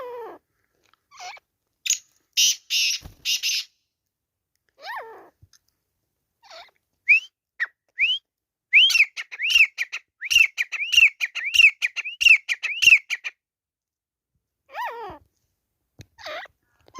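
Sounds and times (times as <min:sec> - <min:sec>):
francolin calling: 0:08.8 - 0:13.3.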